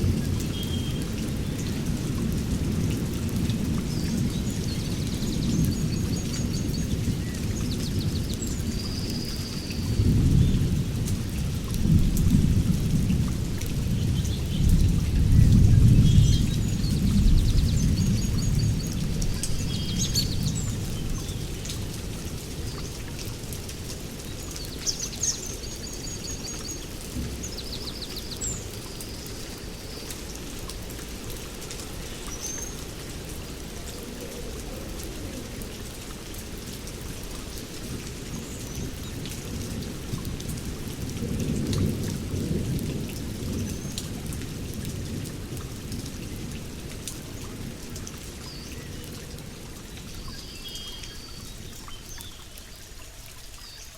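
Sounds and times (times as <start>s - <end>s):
heavy rain: 0.0s - 53.9s
rolling thunder: 9.9s - 20.7s.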